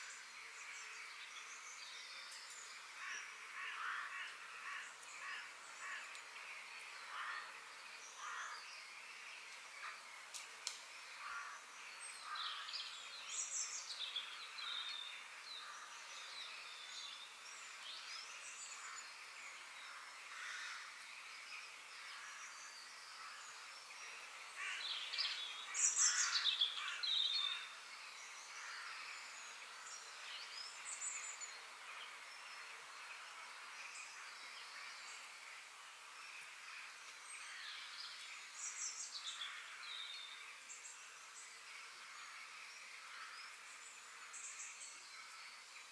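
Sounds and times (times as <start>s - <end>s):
faint steady hiss: 0.0s - 45.9s
forest birds singing: 0.0s - 45.9s.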